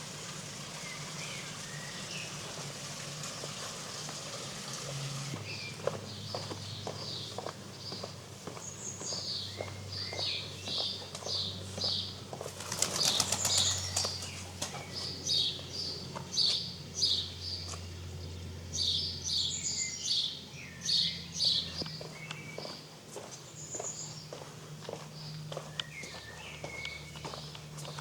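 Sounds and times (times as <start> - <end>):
bird wings flapping: 12.6 - 14.8.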